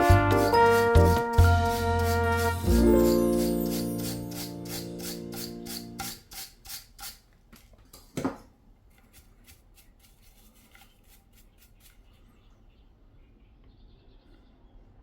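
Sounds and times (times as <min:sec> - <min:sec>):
background music: 0:00.0 - 0:06.1
quick rubbing strokes: 0:00.0 - 0:07.2, 0:09.0 - 0:12.2.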